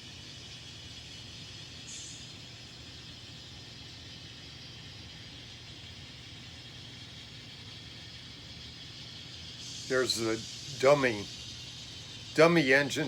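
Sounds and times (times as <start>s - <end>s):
background hiss: 0.0s - 13.0s
model train humming: 0.0s - 13.0s.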